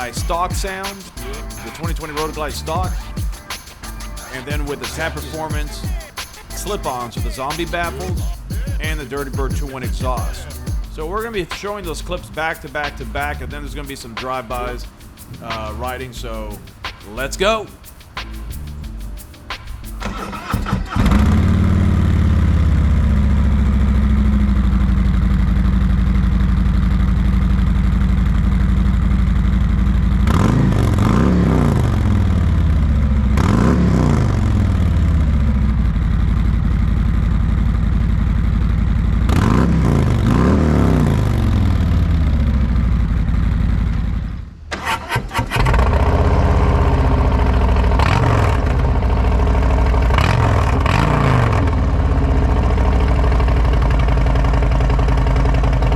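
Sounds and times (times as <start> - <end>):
motorcycle engine idling and revving: 0.0 - 55.9.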